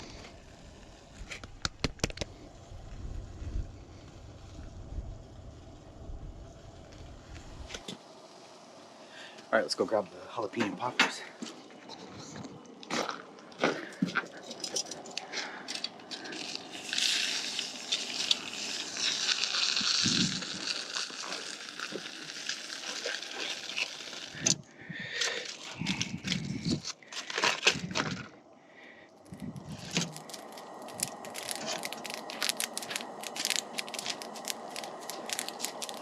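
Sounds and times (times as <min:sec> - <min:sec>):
campfire crackling: 0:00.0 - 0:36.0
crinkling rustling handling noises: 0:10.6 - 0:24.4, 0:25.2 - 0:28.3, 0:29.2 - 0:36.0.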